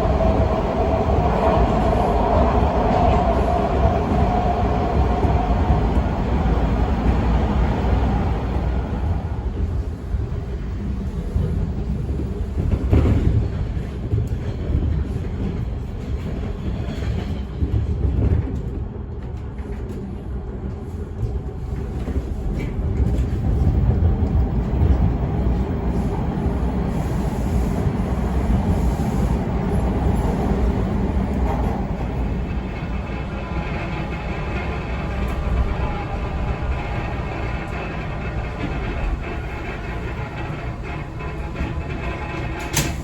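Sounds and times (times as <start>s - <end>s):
subway wheels rumbling on rails: 0.0s - 43.0s
rattling from train car: 37.9s - 43.0s.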